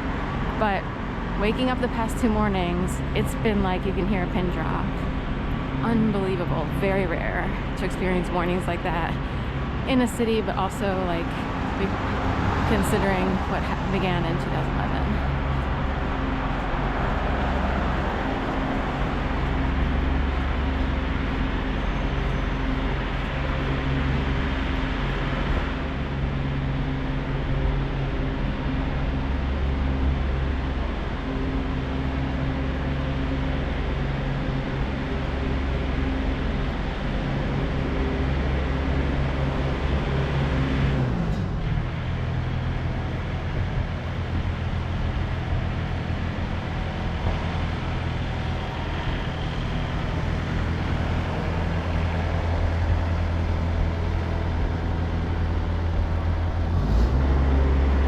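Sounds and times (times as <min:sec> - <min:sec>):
city traffic hum and rumble: 0:00.0 - 0:58.0.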